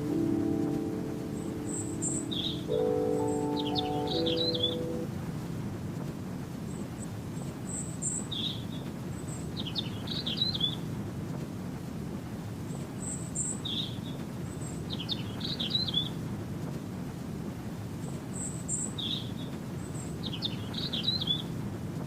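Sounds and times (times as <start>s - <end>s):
steady low noise: 0.0s - 5.9s
bird chirping and warbling: 1.6s - 2.8s, 3.4s - 5.0s.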